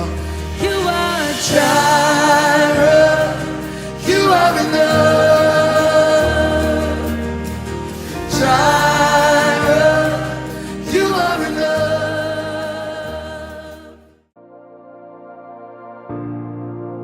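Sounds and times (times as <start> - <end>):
gospel song chords and bass: 0.0 - 14.2.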